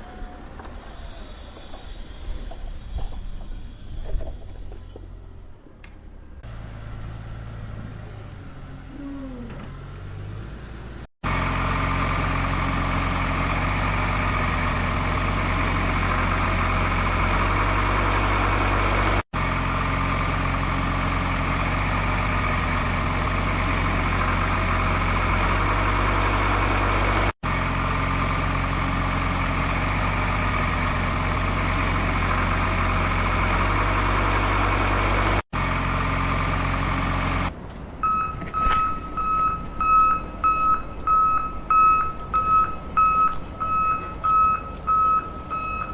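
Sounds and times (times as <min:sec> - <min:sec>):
truck engine idling: 0:11.2 - 0:45.9.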